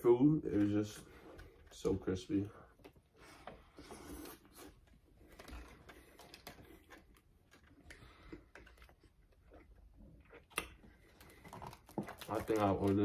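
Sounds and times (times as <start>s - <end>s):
chewing crispy food: 4.1s - 13.0s.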